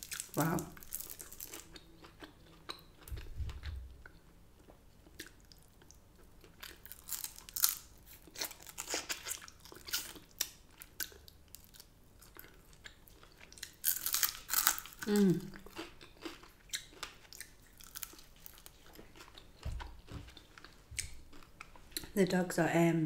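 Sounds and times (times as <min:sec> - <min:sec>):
person crunching crispy food: 0:00.0 - 0:04.2, 0:05.0 - 0:21.5
dull low thump: 0:03.2 - 0:03.9.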